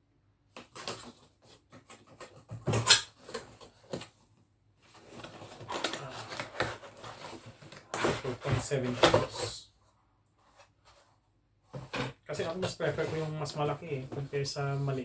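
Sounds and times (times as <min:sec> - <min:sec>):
cardboard rubbing and scraping: 0:04.9 - 0:09.5, 0:10.5 - 0:15.0.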